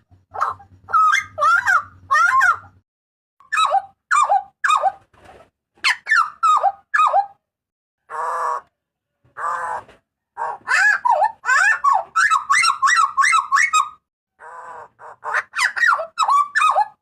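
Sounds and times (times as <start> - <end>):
butcherbird calling: 0.0 - 2.8, 9.4 - 17.0.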